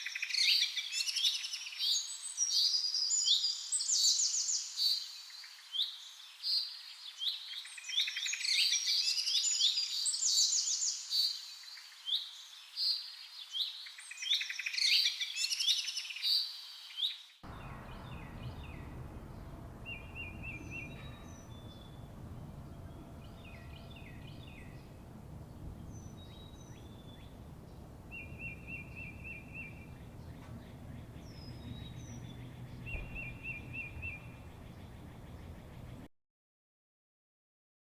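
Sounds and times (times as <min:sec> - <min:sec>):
low steady rumble: 0:17.4 - 0:36.1
zebra finches calling and singing: 0:17.5 - 0:36.0
buzzy bird trills: 0:17.5 - 0:36.1.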